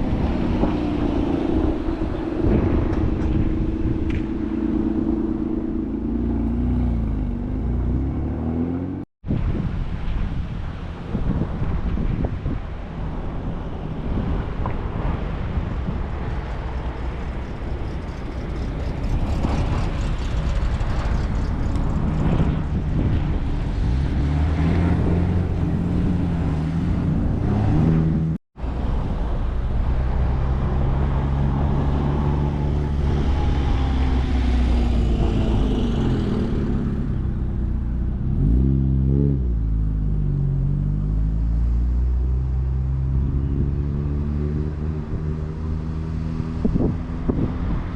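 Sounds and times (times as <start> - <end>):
wind noise on microphone: 0.0 - 8.6, 9.2 - 47.9
engine revving: 0.0 - 9.1, 18.4 - 28.4, 30.2 - 47.9
cars driving past: 0.0 - 47.9.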